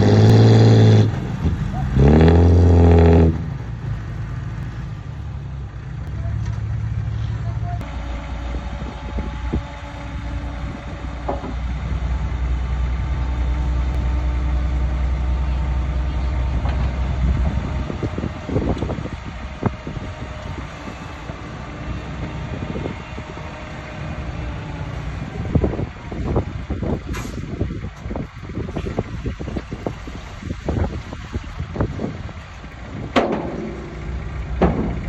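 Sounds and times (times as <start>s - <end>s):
heavy machinery diesel drone: 0.0s - 35.0s
metallic clanks and knocks: 33.0s - 35.0s.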